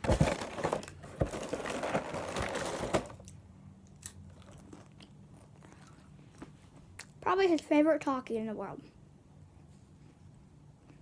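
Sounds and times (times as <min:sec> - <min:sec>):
plastic snack bag crinkling: 0:00.0 - 0:03.4.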